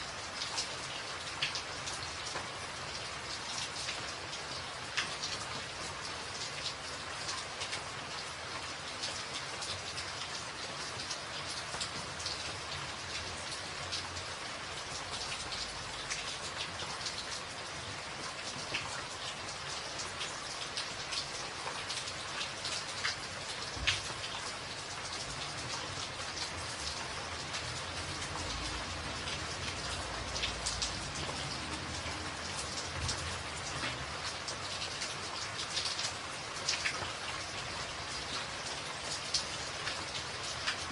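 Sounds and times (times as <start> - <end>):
rain on a tin roof: 0.0 - 40.9.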